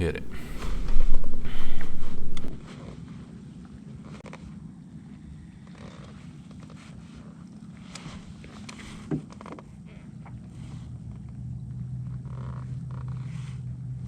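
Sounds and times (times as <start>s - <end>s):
boat motor humming: 0.0s - 2.6s
light clicks: 0.2s - 2.6s.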